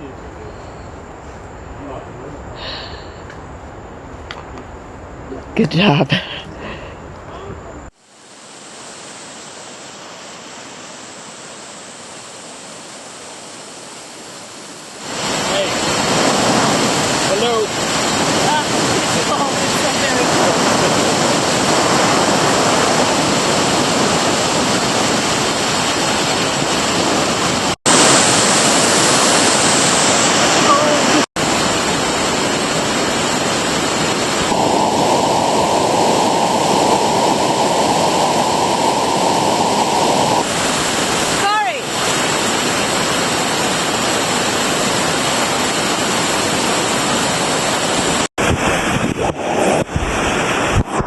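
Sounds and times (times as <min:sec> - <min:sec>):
river rapids rushing over rocks: 0:08.1 - 0:34.6, 0:40.5 - 0:49.0.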